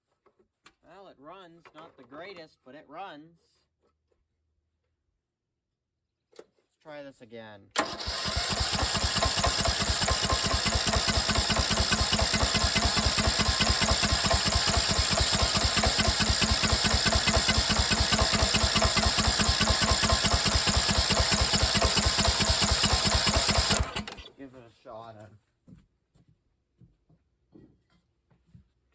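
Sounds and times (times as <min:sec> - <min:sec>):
riding mower engine running: 0:07.8 - 0:24.4.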